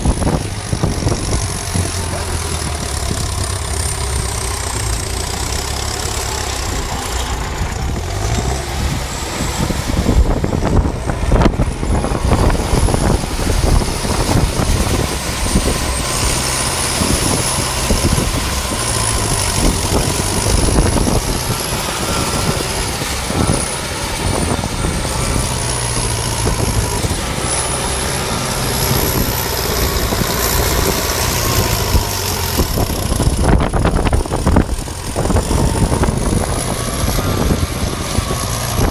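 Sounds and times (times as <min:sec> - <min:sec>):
diesel engine running hard: 0:00.0 - 0:38.9
engine knocks: 0:00.0 - 0:38.9.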